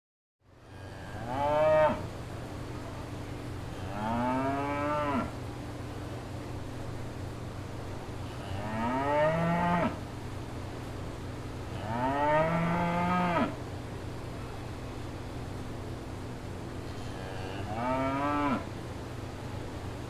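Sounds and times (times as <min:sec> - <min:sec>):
cow mooing: 0:00.8 - 0:02.0, 0:03.8 - 0:05.3, 0:08.3 - 0:10.0, 0:11.8 - 0:13.6, 0:17.0 - 0:18.7.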